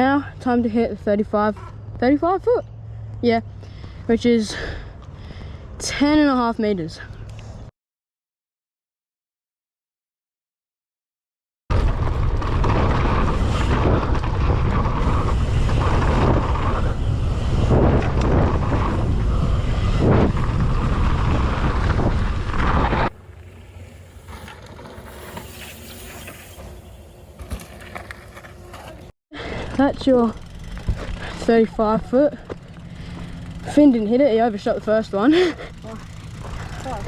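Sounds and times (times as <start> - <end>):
bike rumble on dirt: 11.7 - 37.0
wind buffeting microphone: 11.8 - 24.5.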